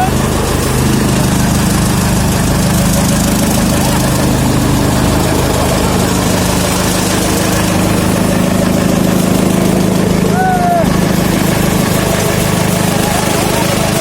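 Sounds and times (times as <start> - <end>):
tractor diesel engine droning: 0.0 - 14.0.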